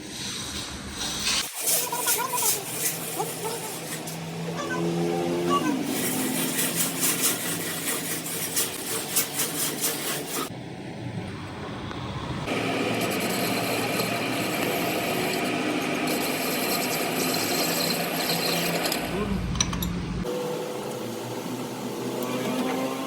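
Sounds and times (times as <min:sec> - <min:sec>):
metal tool rasping strokes: 0:01.2 - 0:04.4, 0:05.5 - 0:10.5, 0:12.5 - 0:19.9.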